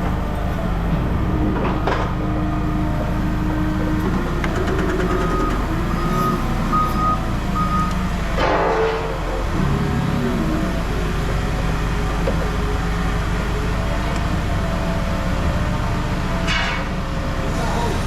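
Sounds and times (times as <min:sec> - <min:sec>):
heavy vehicle engine running: 0:00.0 - 0:18.0
reversing alarm beeping: 0:04.8 - 0:08.1.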